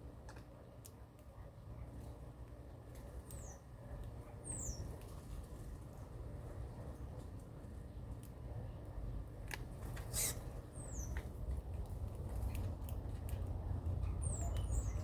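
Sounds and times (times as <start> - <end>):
small birds chirping: 0.4 - 15.0.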